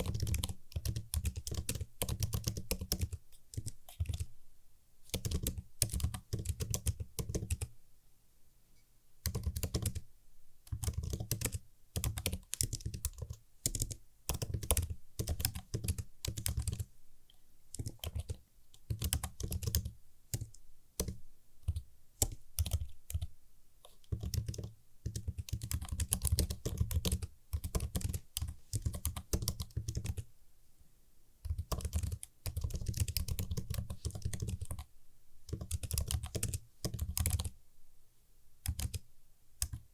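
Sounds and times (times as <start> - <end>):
typing on computer keyboard: 0.0 - 4.3, 5.1 - 7.7, 9.2 - 10.1, 10.7 - 16.9, 17.7 - 30.3, 31.4 - 34.9, 35.5 - 37.6, 38.6 - 39.9.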